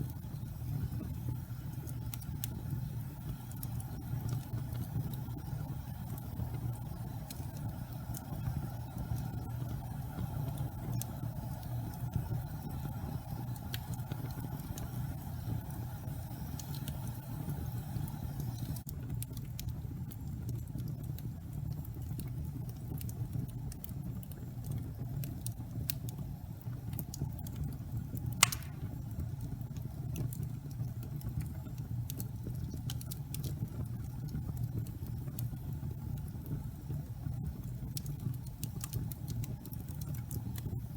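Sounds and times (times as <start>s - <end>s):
fire crackles: 0.0s - 40.9s
fire flames rumbling: 0.0s - 40.9s
loud fire pop: 28.4s - 29.0s.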